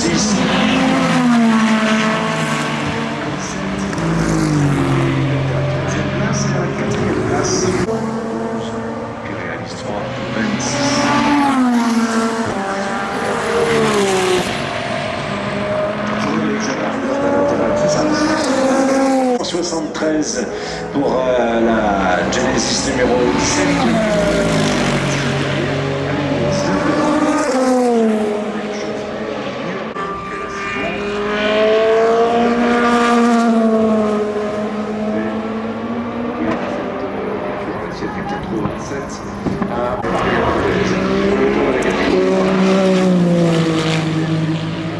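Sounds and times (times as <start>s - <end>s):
race car passing by: 0.0s - 44.9s.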